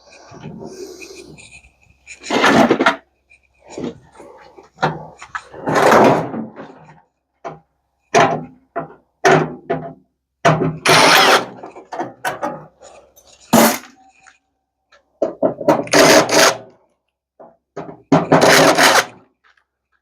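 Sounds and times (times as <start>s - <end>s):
microwave parts knocking and clattering: 2.2s - 3.1s, 4.6s - 14.1s, 15.2s - 16.0s, 17.4s - 19.2s.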